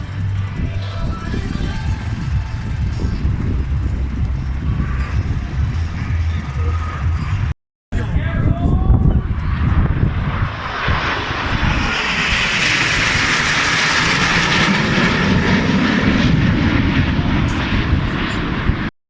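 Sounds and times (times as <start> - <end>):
airplane flying past: 0.0 - 18.9.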